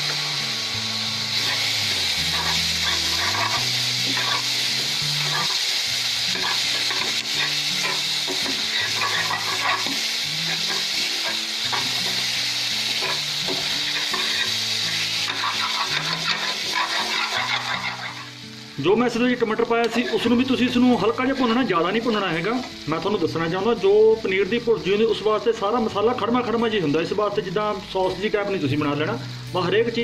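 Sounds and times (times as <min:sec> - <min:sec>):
soft background music: 0:00.0 - 0:30.0
vegetables sizzling in hot oil: 0:00.0 - 0:30.0
steel spoon scraping a pan: 0:01.4 - 0:05.7, 0:06.3 - 0:18.2.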